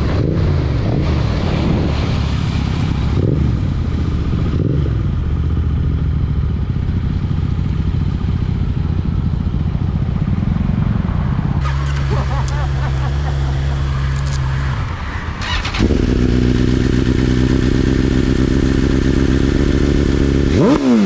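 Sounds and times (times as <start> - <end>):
wind and road rush: 0.0 - 21.0
motorcycle engine running: 3.3 - 21.0.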